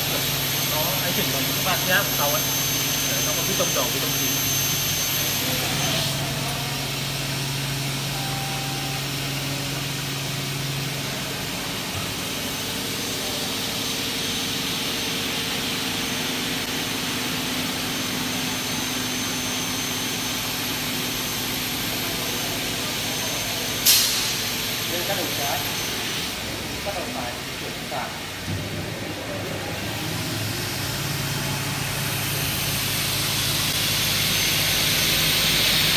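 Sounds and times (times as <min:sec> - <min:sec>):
cutting saw whirring: 0:00.0 - 0:06.4.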